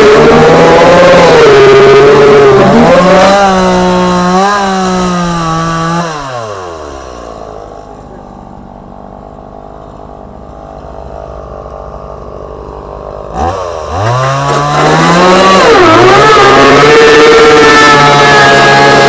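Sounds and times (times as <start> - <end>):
chainsaw cutting fiberglass: 0.0 - 7.6, 13.3 - 19.0.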